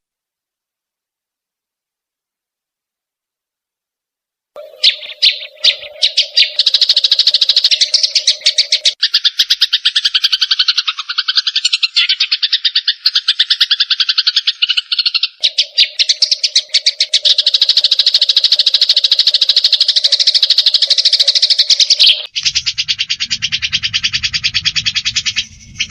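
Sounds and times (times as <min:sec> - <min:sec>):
birds chattering rattle: 0:04.6 - 0:25.9
low drone: 0:22.4 - 0:25.9.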